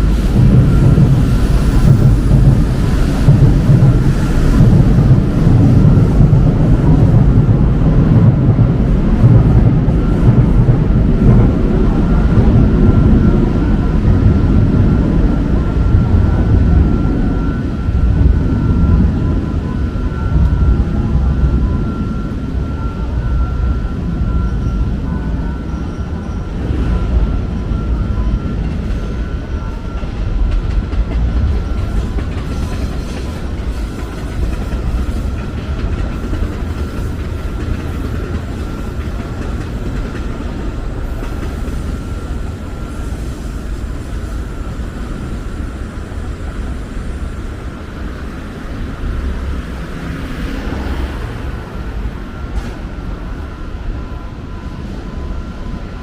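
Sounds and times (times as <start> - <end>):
train rumbling past: 0.0 - 56.0
steady high tone: 11.6 - 30.5, 40.4 - 56.0.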